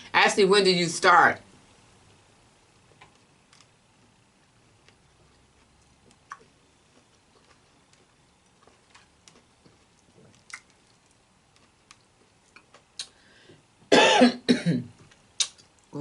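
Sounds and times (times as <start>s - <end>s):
person coughing: 13.9s - 14.9s.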